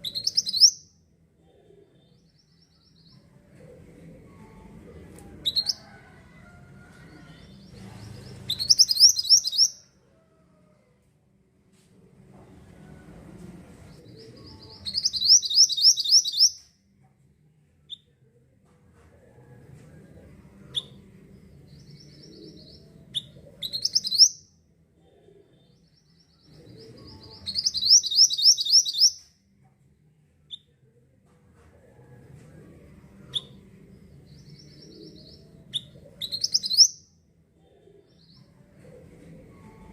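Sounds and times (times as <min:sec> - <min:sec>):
songbird whistling chirps: 0:00.0 - 0:00.9, 0:08.1 - 0:09.8, 0:14.6 - 0:16.7, 0:22.0 - 0:24.5, 0:26.4 - 0:29.3, 0:35.7 - 0:37.1
bird singing rapid high notes: 0:14.9 - 0:16.6, 0:27.5 - 0:29.2.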